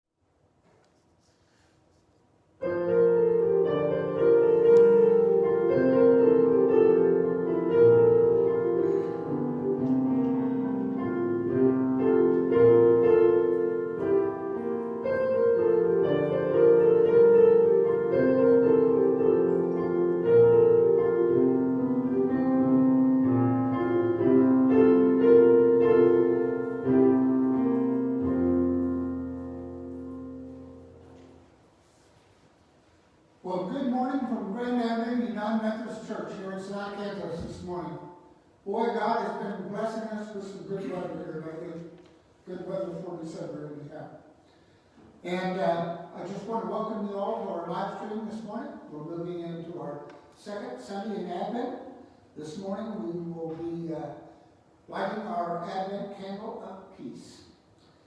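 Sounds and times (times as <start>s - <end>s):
slow piano melody: 2.6s - 44.4s.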